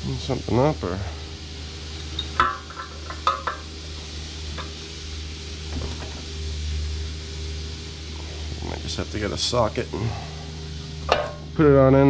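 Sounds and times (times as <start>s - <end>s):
steady low hum: 0.0s - 12.0s
metallic clank: 11.0s - 11.5s.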